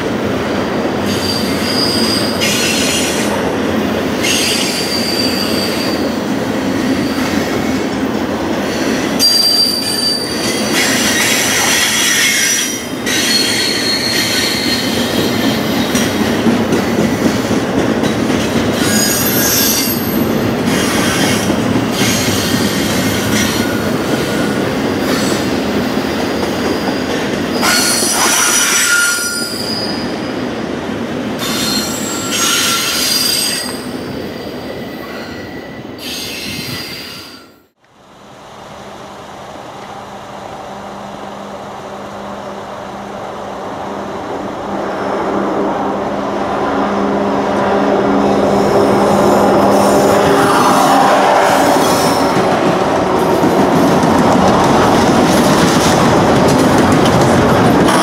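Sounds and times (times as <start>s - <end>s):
freight train wheels rumbling: 0.0s - 58.0s
train wheel squeals: 1.0s - 3.4s, 4.2s - 7.8s, 8.6s - 16.2s, 18.7s - 30.3s, 31.4s - 37.7s.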